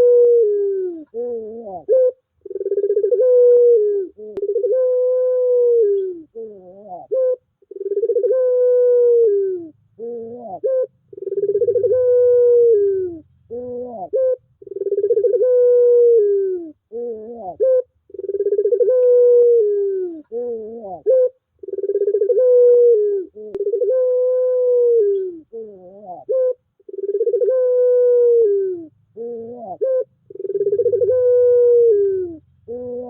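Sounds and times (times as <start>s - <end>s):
dove cooing: 0.0s - 33.0s
quavering rising bird notes: 7.1s - 16.8s, 26.3s - 33.0s.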